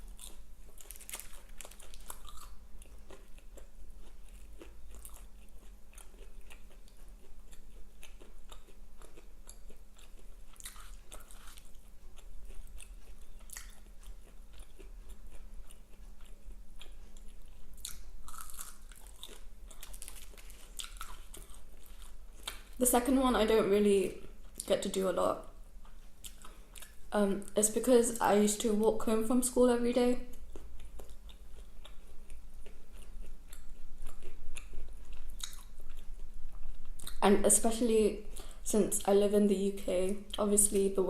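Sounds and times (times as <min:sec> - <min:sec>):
crunchy chewing: 0:00.0 - 0:22.8, 0:25.6 - 0:27.5, 0:30.2 - 0:37.2.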